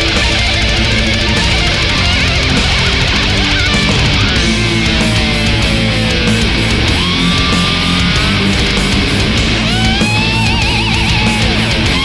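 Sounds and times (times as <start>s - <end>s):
heavy metal instrumental: 0.0s - 12.0s
lead guitar sliding note: 0.2s - 12.0s.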